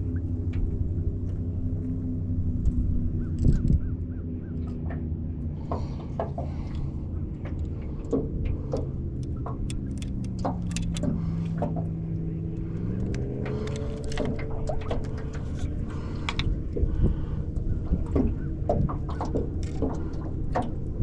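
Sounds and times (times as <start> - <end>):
boat motor running: 0.0 - 21.0
sharp clicks and knocks: 7.4 - 16.9.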